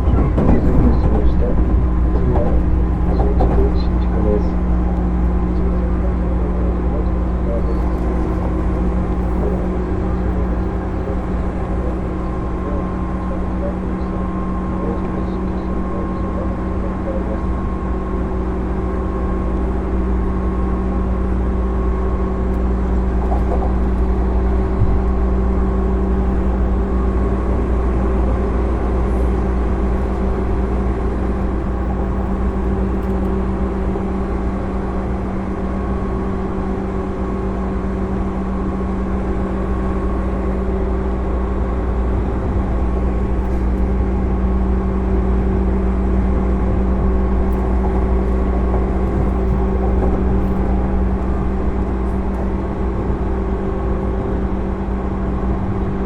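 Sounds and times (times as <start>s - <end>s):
electric train motor hum: 0.0s - 56.0s
train wheels rumbling on rails: 0.0s - 56.0s.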